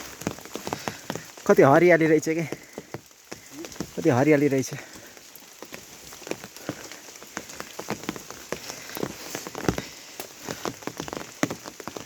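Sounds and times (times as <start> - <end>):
heavy rain hissing: 0.0 - 12.0
raindrops tapping a surface: 0.0 - 12.0.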